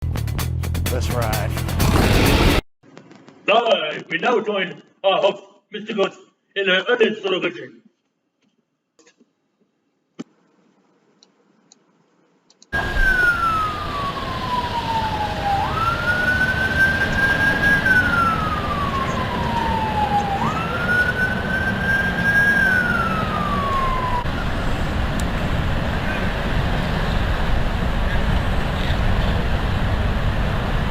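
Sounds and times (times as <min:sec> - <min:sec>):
loud rush of noise: 0:12.8 - 0:30.9
siren wailing: 0:12.8 - 0:30.9.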